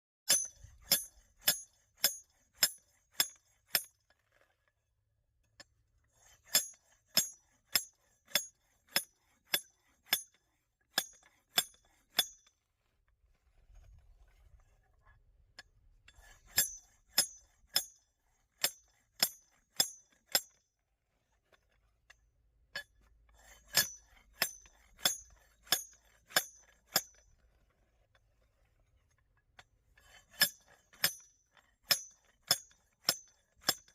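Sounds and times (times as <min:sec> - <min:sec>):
hammer striking rock: 0:31.9 - 0:33.9.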